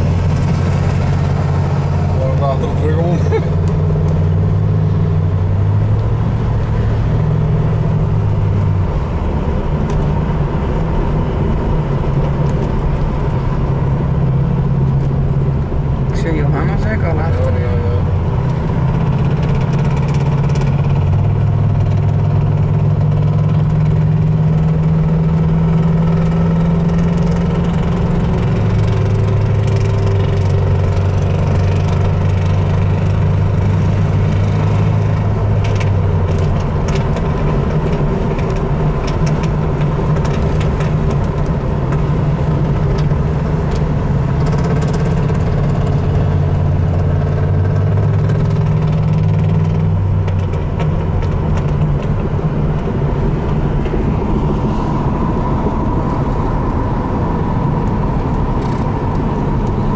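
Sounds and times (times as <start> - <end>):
car engine from inside cabin: 0.0 - 59.9.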